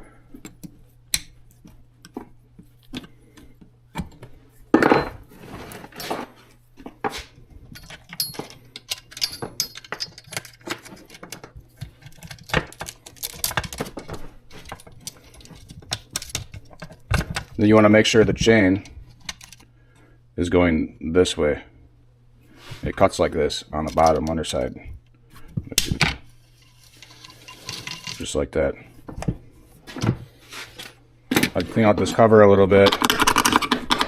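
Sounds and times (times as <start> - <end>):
saw chain clicking and rattling: 7.8 - 11.2.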